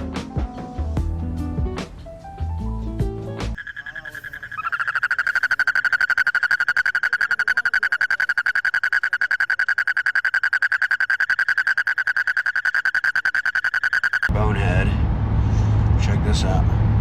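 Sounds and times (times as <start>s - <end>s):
frog trilling: 3.6s - 14.3s.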